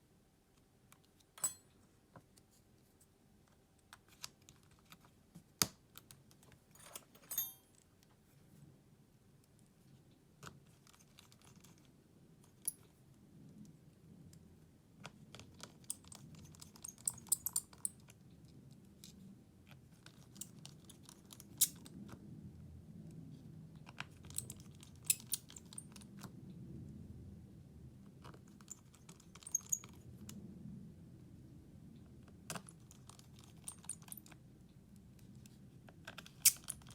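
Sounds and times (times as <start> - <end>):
hand tools clicking on phone parts: 1.4 - 1.6, 6.8 - 7.6, 24.4 - 25.9.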